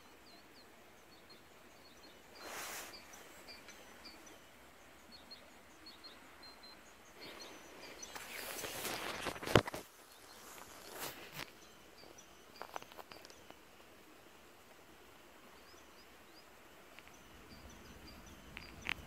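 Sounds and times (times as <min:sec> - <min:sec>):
small birds chirping: 0:00.0 - 0:19.0
rustling noise: 0:02.3 - 0:03.7, 0:07.3 - 0:11.7, 0:12.6 - 0:13.6.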